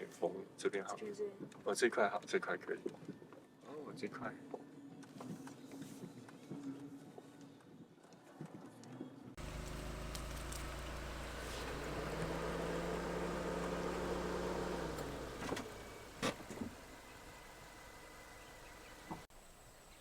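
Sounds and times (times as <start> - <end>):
car engine rumbling: 9.4 - 19.3.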